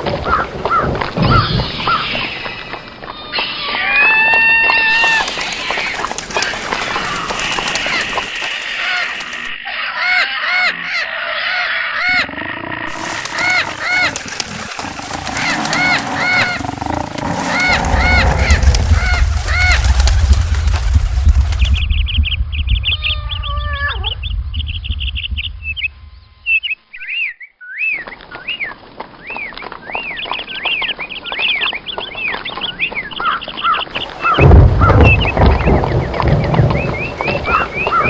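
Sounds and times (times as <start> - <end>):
birds chirping: 0.1 - 38.0
low rumble: 12.9 - 26.6.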